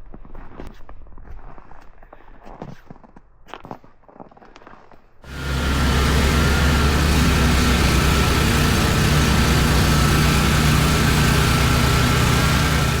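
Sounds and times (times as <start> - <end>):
engine running steadily: 5.3 - 13.0.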